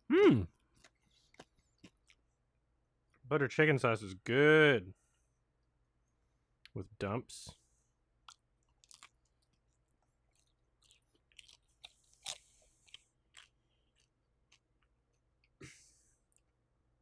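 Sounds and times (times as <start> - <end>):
mouth sounds: 0.0 - 0.5
crisp chewing crunches: 0.5 - 2.3, 8.2 - 15.6.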